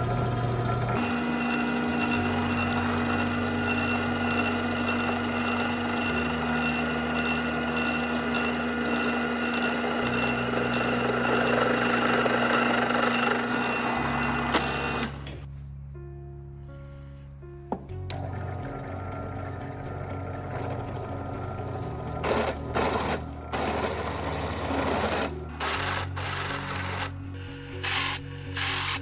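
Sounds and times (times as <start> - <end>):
machine running with fast clatter: 0.0 - 15.2
background music: 0.9 - 29.0.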